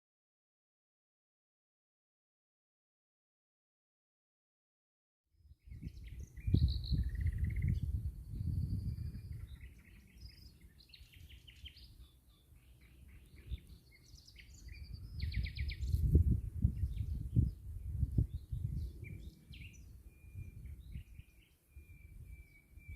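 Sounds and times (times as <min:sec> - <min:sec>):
songbirds chirping and trilling: 0:05.4 - 0:22.9.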